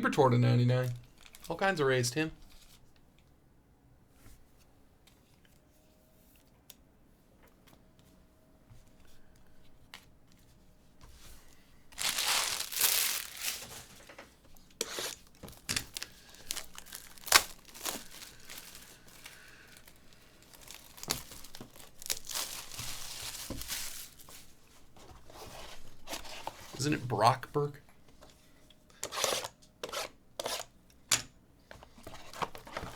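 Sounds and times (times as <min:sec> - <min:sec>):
wrapper tearing and crinkling: 0:00.9 - 0:01.7, 0:12.0 - 0:14.0, 0:14.8 - 0:24.5.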